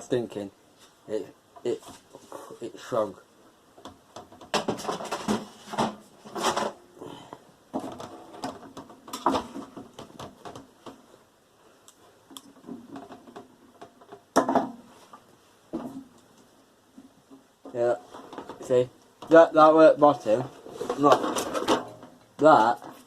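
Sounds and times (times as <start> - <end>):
metal parts clattering and scraping: 4.6 - 6.8, 20.2 - 23.0.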